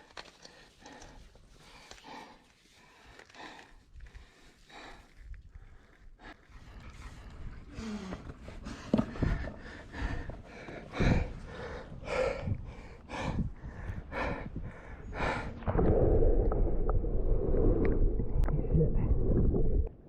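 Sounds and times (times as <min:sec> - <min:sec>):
heavy breathing from exertion: 0:00.4 - 0:15.7.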